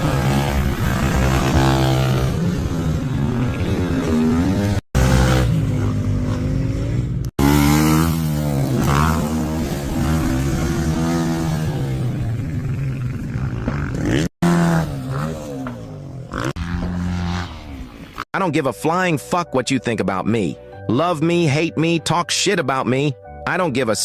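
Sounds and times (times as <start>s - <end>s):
vehicle engine revving: 0.0s - 18.0s.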